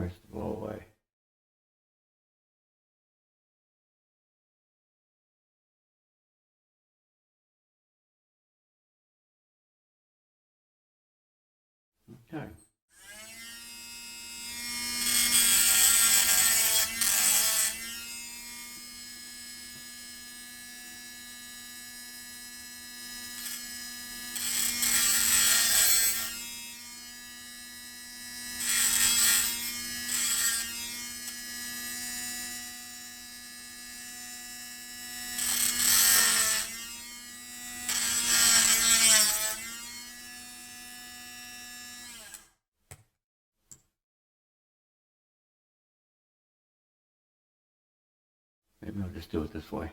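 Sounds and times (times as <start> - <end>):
hot air tool blower buzzing: 13.0 - 42.4.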